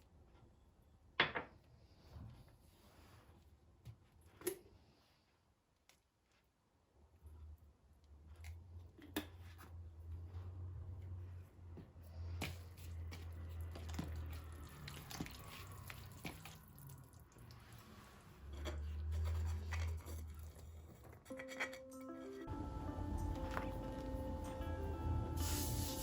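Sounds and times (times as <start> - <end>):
soft wet squishing: 3.0 - 18.4
steady low hum: 22.5 - 26.0.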